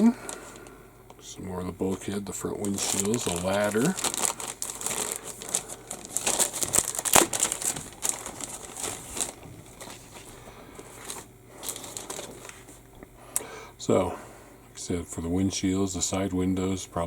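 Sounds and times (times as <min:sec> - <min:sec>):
plastic packaging crinkling: 0:01.8 - 0:12.9.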